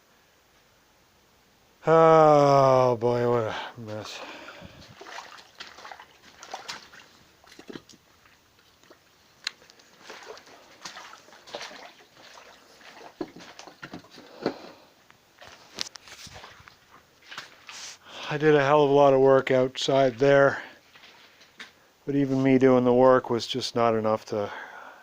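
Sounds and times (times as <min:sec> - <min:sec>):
shallow water splashing: 0:03.8 - 0:14.4, 0:15.4 - 0:17.8.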